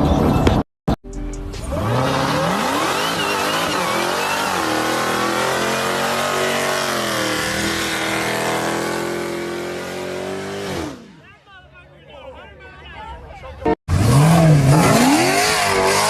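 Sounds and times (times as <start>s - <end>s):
car engine accelerating hard: 1.6s - 11.1s, 13.9s - 16.0s.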